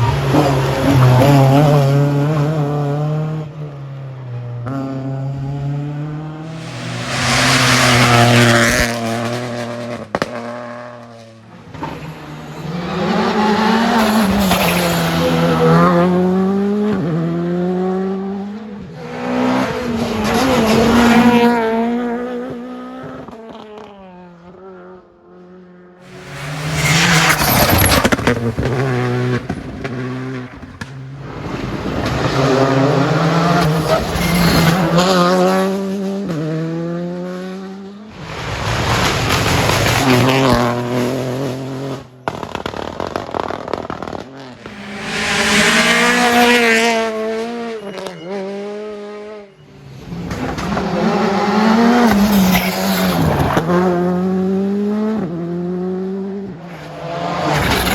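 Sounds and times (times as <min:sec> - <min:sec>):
rally car engines revving: 0:00.0 - 0:57.9
tyre squeal: 0:26.1 - 0:28.4, 0:33.4 - 0:35.2, 0:44.6 - 0:50.2.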